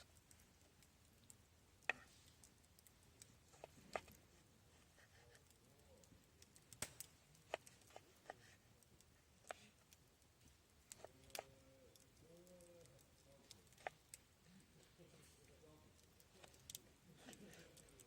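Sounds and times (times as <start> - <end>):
sharp clicks and snaps: 0.0 - 4.2, 5.4 - 8.0, 8.8 - 14.3, 15.3 - 16.8.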